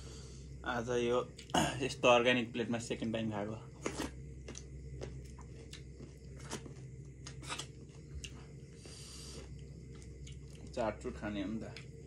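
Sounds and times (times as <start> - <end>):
steady low hum: 0.0 - 12.0
person chewing: 3.8 - 10.7.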